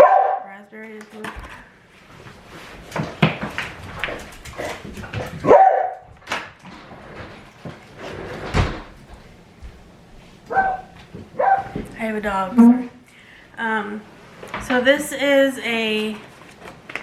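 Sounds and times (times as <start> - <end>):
dog barking: 0.0 - 0.5, 5.4 - 6.1, 10.5 - 11.8.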